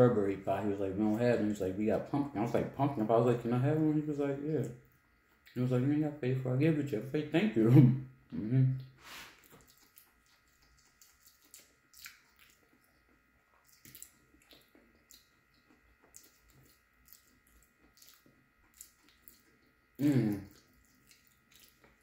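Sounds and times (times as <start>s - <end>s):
person chewing with mouth closed: 8.7s - 22.0s.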